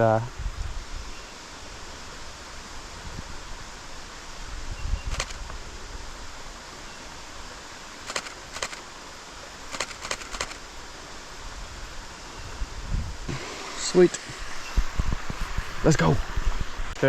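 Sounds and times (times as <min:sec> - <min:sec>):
steady outdoor hiss: 0:00.0 - 0:17.0
camera shutter clicking: 0:05.1 - 0:05.5, 0:08.1 - 0:08.8, 0:09.7 - 0:10.6.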